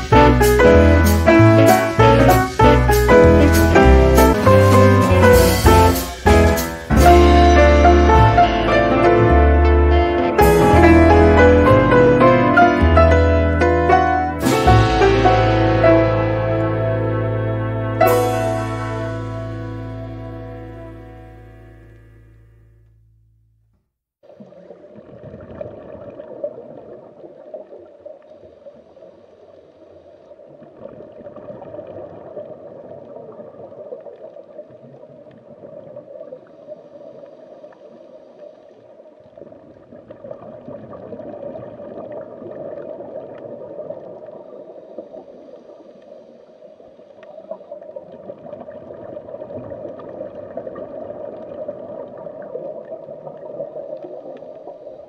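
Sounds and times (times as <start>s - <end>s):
underwater bubbling and gurgling: 24.2s - 55.0s.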